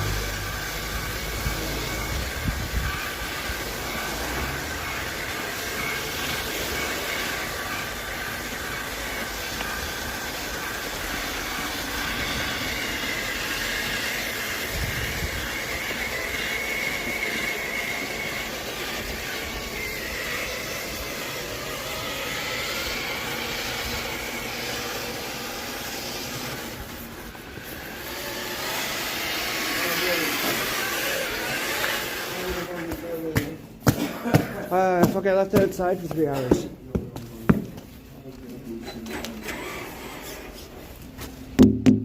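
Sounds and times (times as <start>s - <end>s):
rushing hiss: 0.0s - 32.7s
electric motor whine: 0.0s - 33.2s.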